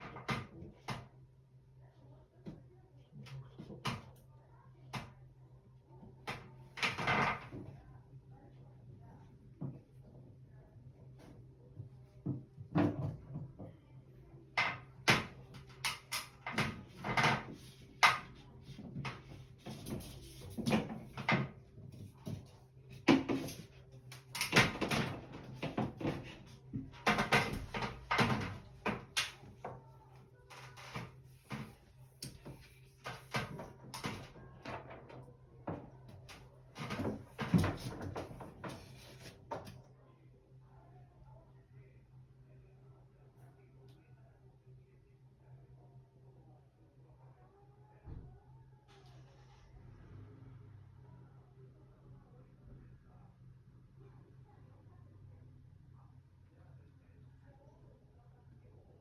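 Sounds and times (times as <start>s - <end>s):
faint low hum: 0.0s - 59.0s
hard objects knocking and clattering: 14.6s - 29.8s.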